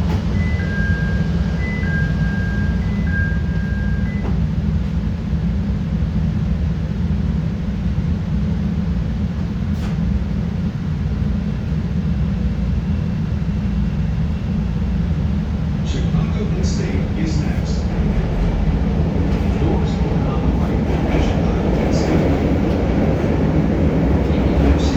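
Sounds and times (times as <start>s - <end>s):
subway train wheels rumbling: 0.0s - 24.9s
two-tone door chime: 0.1s - 4.4s.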